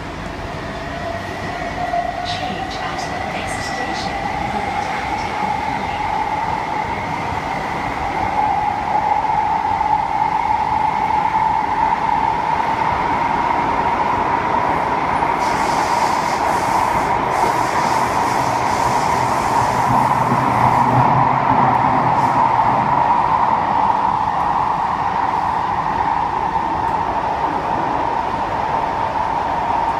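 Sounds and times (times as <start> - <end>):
train wheels rumbling on rail: 0.0 - 29.9
hiss: 15.4 - 20.3.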